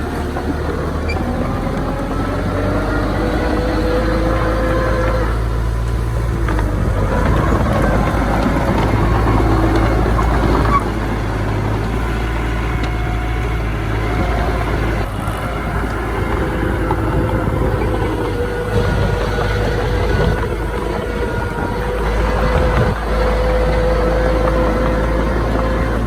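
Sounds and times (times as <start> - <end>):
diesel machinery engine drone: 0.0 - 26.0
faint whining tones: 0.0 - 26.0.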